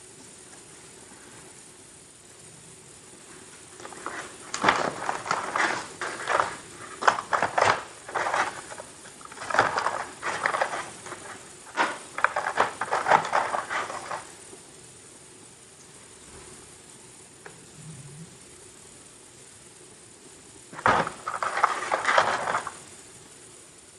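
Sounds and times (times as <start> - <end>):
cookie packaging crackling: 3.7 - 14.4, 20.7 - 22.9.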